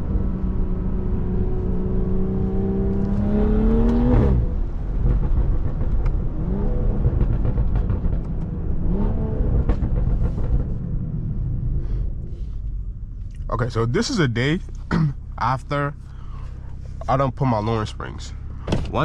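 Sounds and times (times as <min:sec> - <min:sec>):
turbocharged car engine accelerating: 0:00.0 - 0:11.8.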